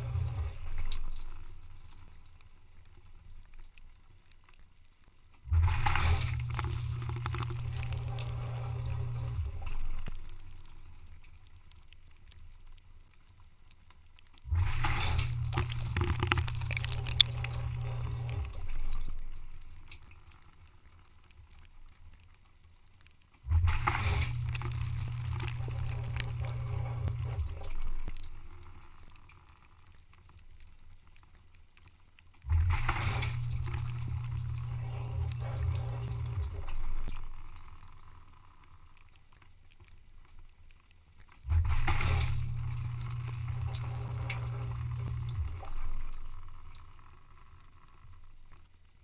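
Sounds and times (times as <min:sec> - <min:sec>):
dishwasher pump humming: 0:00.0 - 0:02.0, 0:05.5 - 0:11.0, 0:14.5 - 0:20.0, 0:23.5 - 0:29.0, 0:32.5 - 0:37.8, 0:41.5 - 0:47.1
water spraying: 0:00.0 - 0:02.7, 0:05.4 - 0:11.4, 0:14.4 - 0:20.4, 0:23.4 - 0:29.0, 0:32.4 - 0:37.8, 0:41.4 - 0:46.8.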